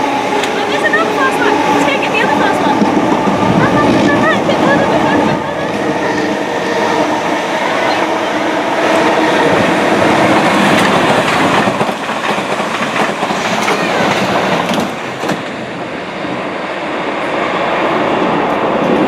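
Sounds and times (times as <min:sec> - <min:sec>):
passenger train passing: 0:00.0 - 0:19.0
wheels clicking over rail joints: 0:09.5 - 0:15.6.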